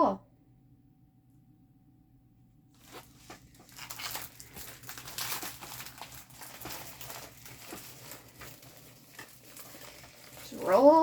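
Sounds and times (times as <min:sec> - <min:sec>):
plastic film crinkling: 0:02.8 - 0:11.0.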